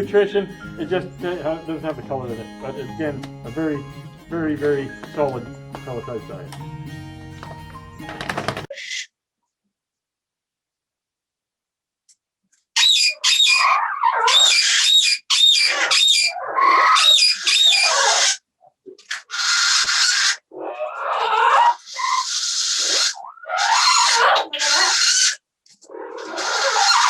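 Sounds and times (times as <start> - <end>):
parrot squawking: 12.8 - 18.4, 19.1 - 25.4, 26.2 - 27.0.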